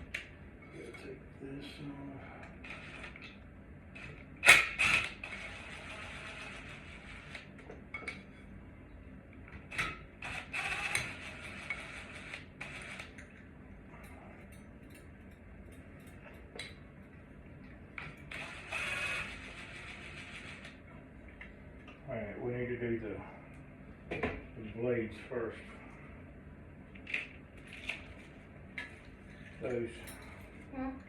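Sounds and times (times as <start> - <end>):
ceiling fan parts clicking and creaking: 0.0 - 5.5, 6.6 - 18.5, 26.9 - 31.0.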